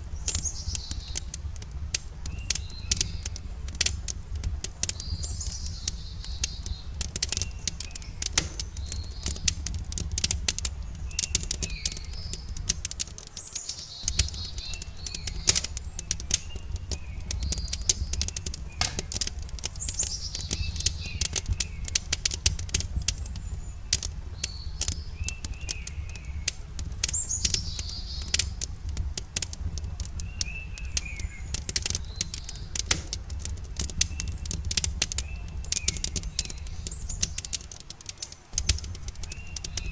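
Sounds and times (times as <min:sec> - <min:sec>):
birds chirping: 0:00.0 - 0:04.1, 0:04.7 - 0:39.9
campfire crackling and popping: 0:00.0 - 0:39.9.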